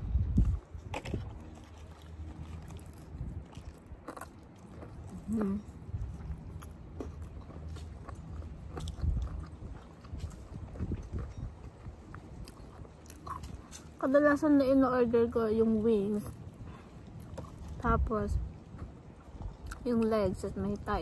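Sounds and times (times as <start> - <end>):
chewing crispy chicken: 0.3 - 14.0.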